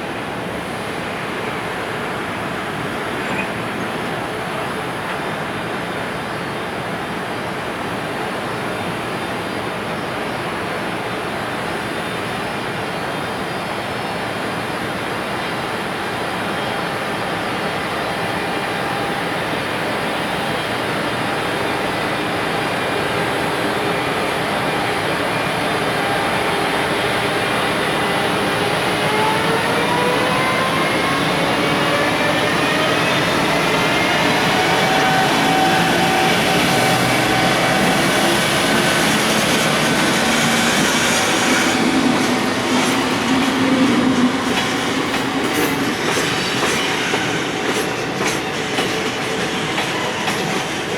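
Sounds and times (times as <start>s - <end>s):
freight train running: 0.0s - 50.9s
locomotive motor whine rising: 25.8s - 50.9s.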